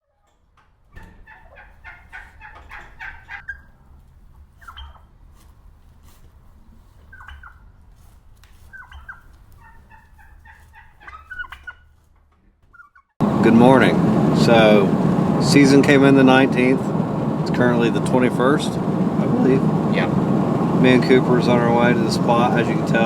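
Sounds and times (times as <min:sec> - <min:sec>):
wild turkeys calling: 0:01.2 - 0:03.7, 0:04.6 - 0:05.1, 0:07.0 - 0:07.6, 0:08.7 - 0:11.9, 0:12.7 - 0:23.0
steady low rumble: 0:13.2 - 0:23.0.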